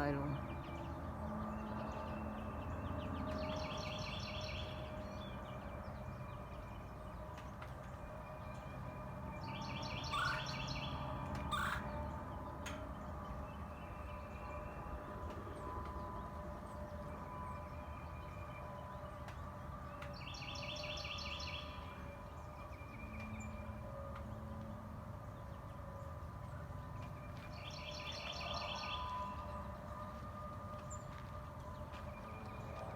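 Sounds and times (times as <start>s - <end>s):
songbird trilling: 9.7s - 11.9s
sharp bird calls: 9.7s - 12.0s.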